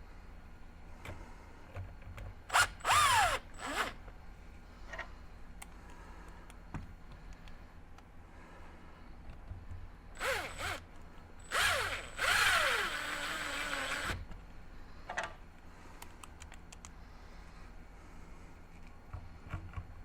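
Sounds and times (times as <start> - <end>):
electric screwdriver driving screws: 2.5 - 4.0, 10.2 - 10.8, 11.5 - 14.2.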